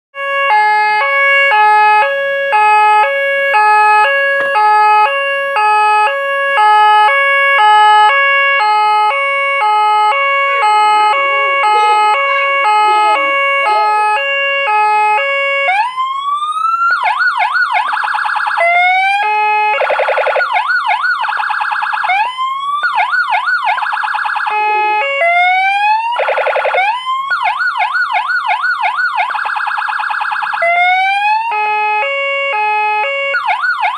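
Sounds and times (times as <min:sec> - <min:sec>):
siren wail and yelp: 0:00.2 - 0:33.9
two-tone police siren: 0:00.2 - 0:33.9.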